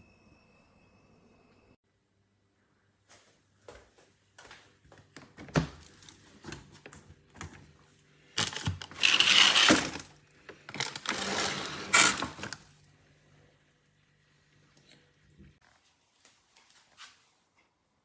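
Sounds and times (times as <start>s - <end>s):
rustling or scraping: 8.4s - 12.6s.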